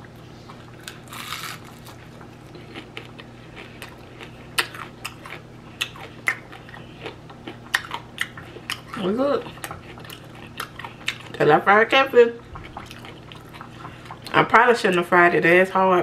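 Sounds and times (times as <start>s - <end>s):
crunchy biting and chewing: 0.5s - 11.4s.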